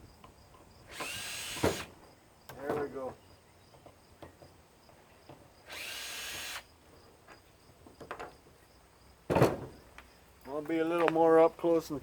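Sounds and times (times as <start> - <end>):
power drill running: 0.9 - 1.9, 5.7 - 6.7.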